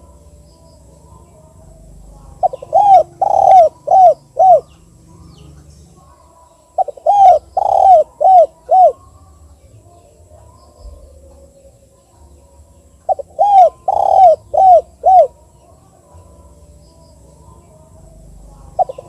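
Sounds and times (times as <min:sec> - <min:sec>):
dove cooing: 0:01.2 - 0:05.4, 0:06.0 - 0:09.1, 0:13.0 - 0:15.5, 0:18.0 - 0:19.0.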